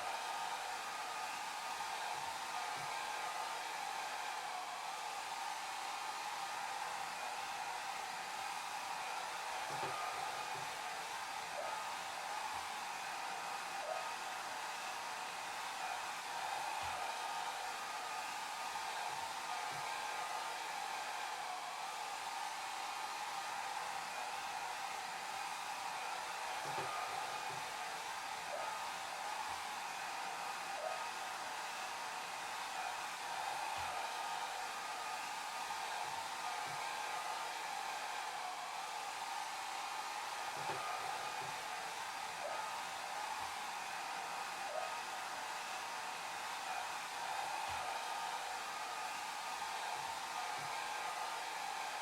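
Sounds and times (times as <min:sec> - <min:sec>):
hair dryer running: 0:00.0 - 0:52.0.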